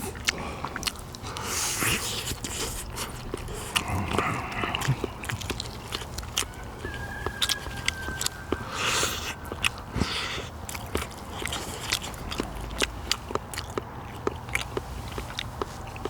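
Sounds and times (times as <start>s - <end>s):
short slurps: 0.0s - 6.3s
chewing and gnawing meat: 0.0s - 16.0s.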